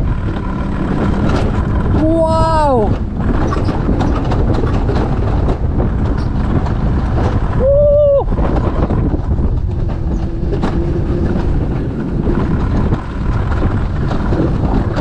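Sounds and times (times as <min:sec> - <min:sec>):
coaster sled rumbling on rail: 0:00.0 - 0:15.0
wind on microphone: 0:00.0 - 0:15.0
person shouting: 0:02.0 - 0:03.0, 0:07.6 - 0:08.3.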